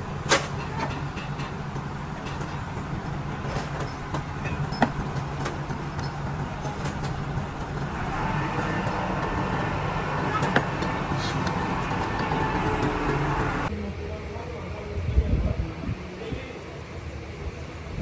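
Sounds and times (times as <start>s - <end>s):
busy loud machine noise: 0.0s - 13.7s
low machine hum: 0.0s - 13.7s.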